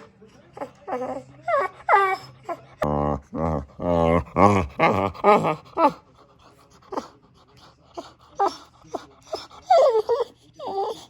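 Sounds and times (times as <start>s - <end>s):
dog whining: 0.6s - 6.0s, 8.0s - 11.0s.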